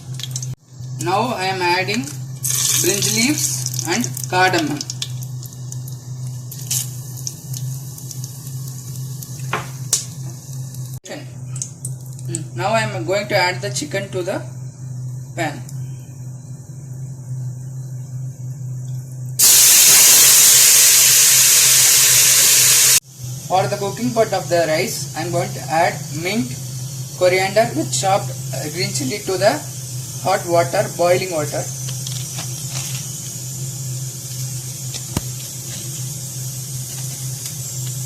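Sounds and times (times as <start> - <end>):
chicken sizzling in hot fat: 0.0 - 11.0, 19.4 - 38.0
food hissing on a stove: 19.4 - 38.0.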